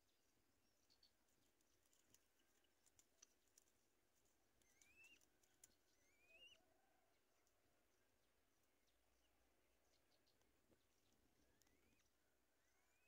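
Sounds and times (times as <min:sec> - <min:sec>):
faint clicks: 0:01.5 - 0:05.8
faint rising bird call: 0:06.0 - 0:07.1.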